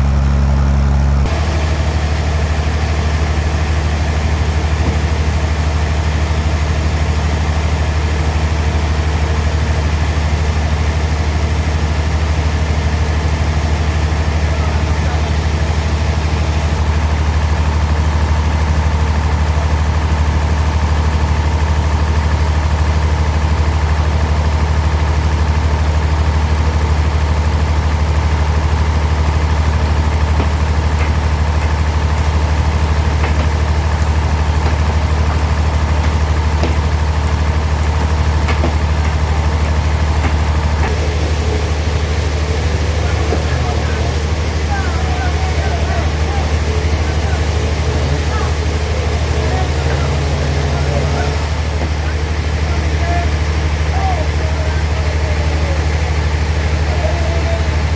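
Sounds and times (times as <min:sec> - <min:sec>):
bandsaw machinery humming: 0:00.0 - 0:57.9.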